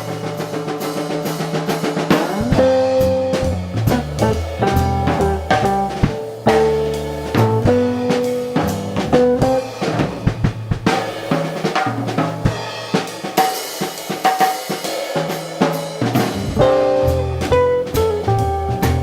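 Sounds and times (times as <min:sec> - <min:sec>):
jazz drum kit playing: 0:00.0 - 0:19.0
jazz guitar notes: 0:02.1 - 0:11.1, 0:16.2 - 0:19.0
upright bass: 0:02.2 - 0:11.2, 0:16.2 - 0:19.0.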